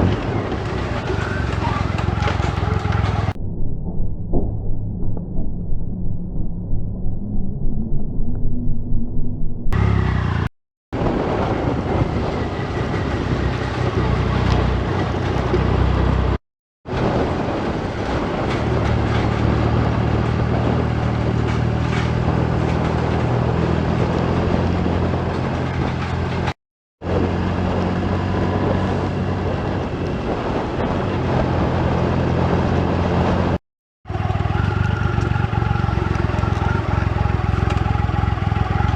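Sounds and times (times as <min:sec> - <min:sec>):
motorcycle engine running: 0:00.0 - 0:03.4, 0:09.7 - 0:16.4, 0:17.0 - 0:38.9
wind and road noise: 0:00.0 - 0:38.9.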